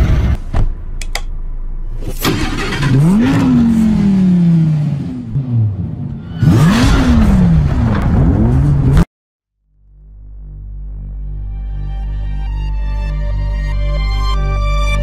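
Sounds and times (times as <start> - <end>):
sports car engine revving: 2.0 - 9.0.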